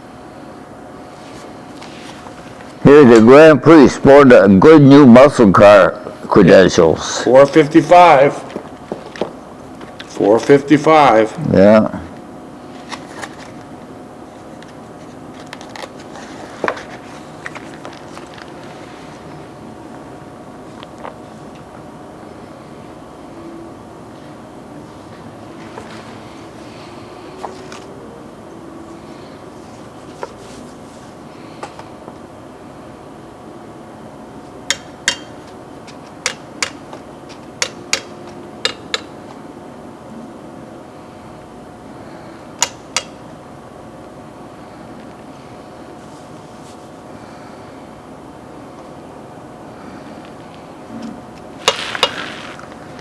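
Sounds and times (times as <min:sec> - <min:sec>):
low room hum: 0:00.0 - 0:53.0
handling clicks and rustles: 0:14.5 - 0:19.3.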